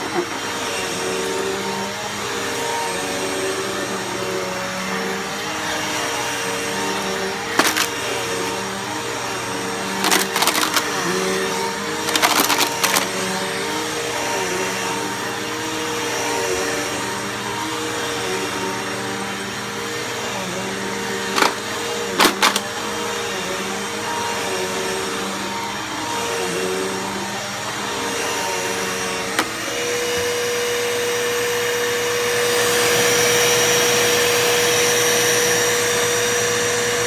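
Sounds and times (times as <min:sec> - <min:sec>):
upright vacuum running: 0:00.0 - 0:37.0
debris clicking in vacuum: 0:10.0 - 0:10.9, 0:12.1 - 0:13.1.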